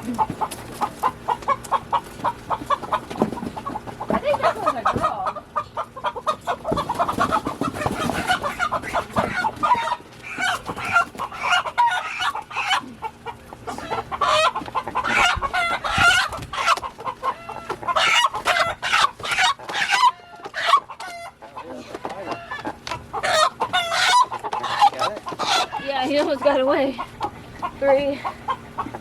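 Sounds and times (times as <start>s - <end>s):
chickens squawking and clucking: 0.0s - 29.0s.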